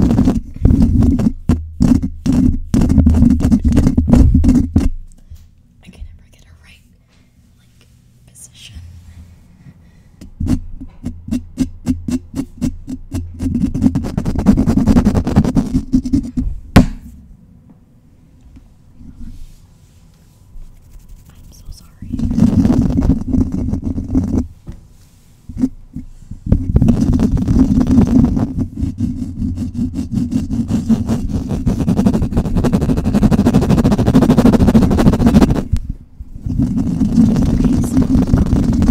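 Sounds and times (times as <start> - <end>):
scratching on a microphone: 0.0 - 5.1, 10.3 - 16.6, 20.6 - 24.7, 25.4 - 38.9.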